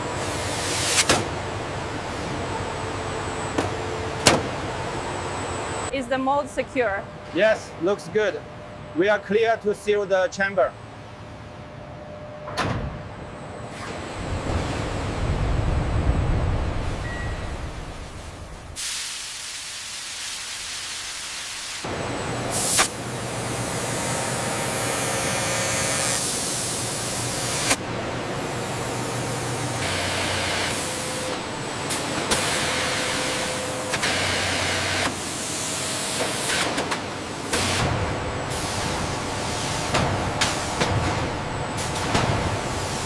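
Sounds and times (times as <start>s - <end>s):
low machine hum: 0.0s - 18.8s, 21.8s - 43.0s
steady hissing of air: 18.0s - 21.9s.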